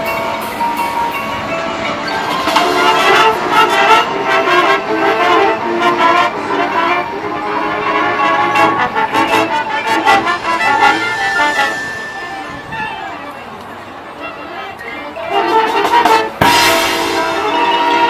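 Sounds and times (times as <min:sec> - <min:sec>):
brass playing tune: 0:00.0 - 0:13.4, 0:14.0 - 0:18.0
drum strokes: 0:15.8 - 0:17.6.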